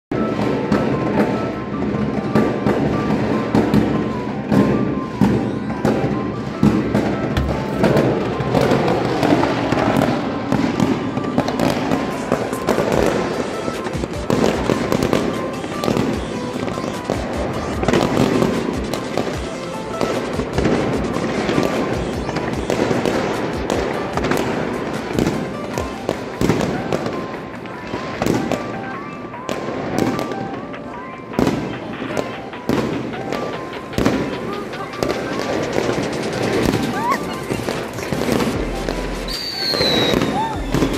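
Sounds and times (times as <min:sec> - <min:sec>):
fireworks bangs and crackles: 0:00.1 - 0:40.9
music: 0:00.1 - 0:40.9.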